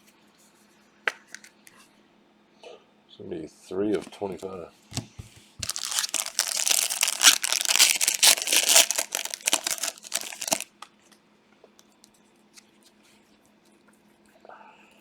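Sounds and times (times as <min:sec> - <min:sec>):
foil wrapper tearing and crackling: 0:05.6 - 0:10.8.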